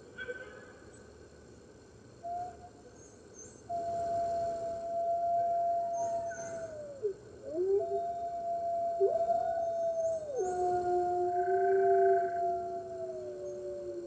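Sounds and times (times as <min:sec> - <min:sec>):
wolves howling: 0:03.8 - 0:14.0.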